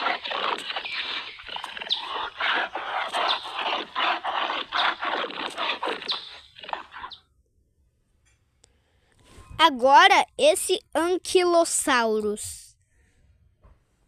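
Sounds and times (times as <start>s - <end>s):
squeaky yelping animal calls: 0.0s - 7.2s.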